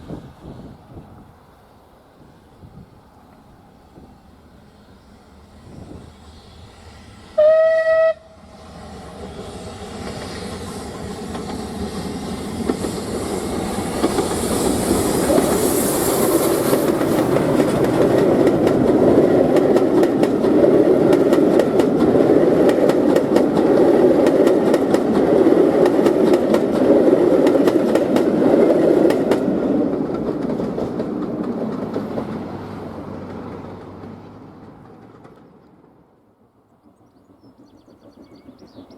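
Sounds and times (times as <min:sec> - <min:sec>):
train passing: 0:00.0 - 0:38.9
locomotive whistle blast: 0:07.2 - 0:08.5
wheels clicking over rail joints: 0:12.6 - 0:36.0, 0:36.8 - 0:38.9.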